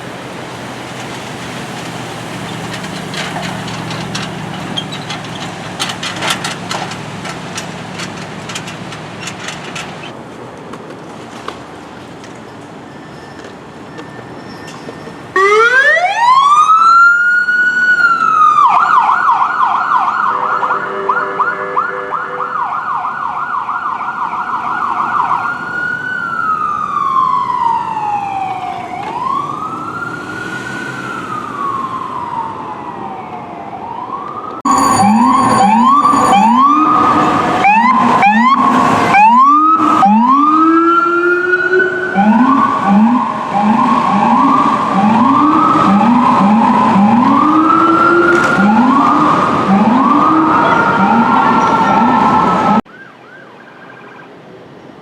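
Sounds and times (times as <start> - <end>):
fire engine siren wailing: 15.3 - 54.4
siren rapid warble: 15.4 - 23.6, 26.4 - 54.4.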